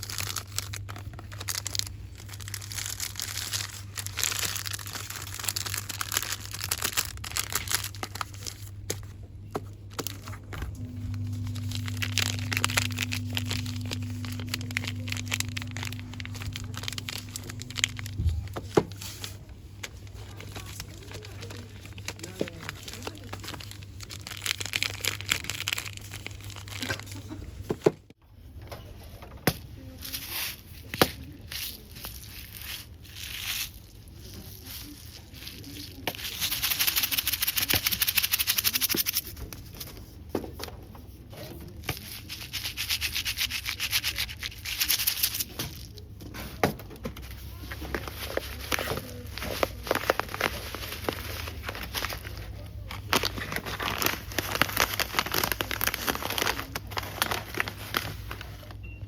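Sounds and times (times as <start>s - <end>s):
packaging crinkling: 0.0s - 27.4s, 31.2s - 39.3s, 47.3s - 58.8s
steady low hum: 0.0s - 28.2s
higher steady tone: 10.1s - 19.2s.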